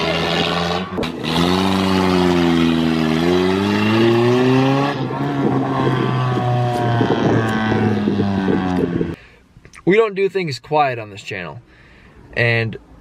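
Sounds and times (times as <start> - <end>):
car exhaust revving: 0.0 - 9.2.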